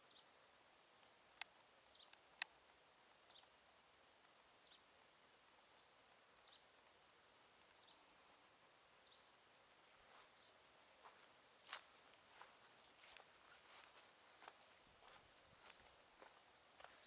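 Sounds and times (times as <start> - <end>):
bird chirping: 0.0 - 0.4, 1.0 - 2.6, 3.2 - 3.6, 4.6 - 4.9, 5.6 - 6.8, 7.6 - 8.2, 9.0 - 9.4, 10.1 - 17.0
sharp clicks: 1.4 - 2.6.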